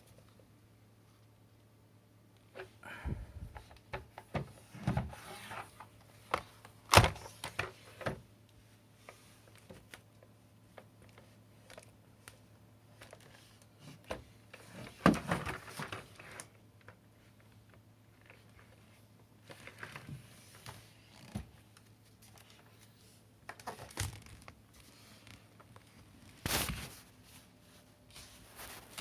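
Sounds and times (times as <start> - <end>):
rustling: 18.2 - 29.0.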